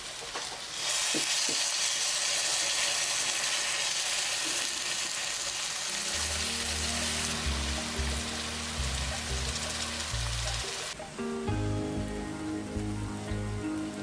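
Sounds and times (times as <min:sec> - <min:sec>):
food sizzling in a pan: 0:00.0 - 0:14.0
music with low bass line: 0:06.2 - 0:14.0.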